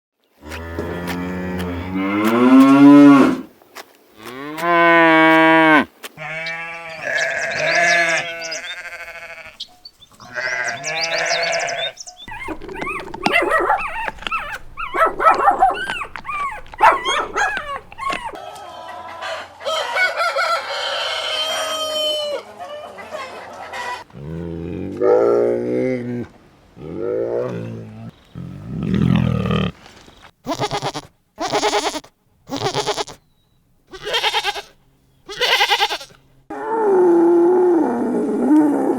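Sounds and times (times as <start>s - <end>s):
sheep bleating: 5.6s - 9.6s, 10.2s - 18.4s, 30.4s - 33.2s, 33.9s - 36.2s.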